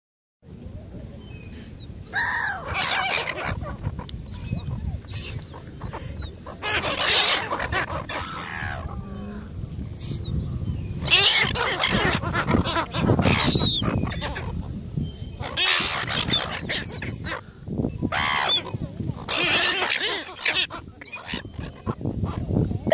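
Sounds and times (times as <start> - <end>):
gulls squawking: 1.5 - 9.4, 11.0 - 22.5.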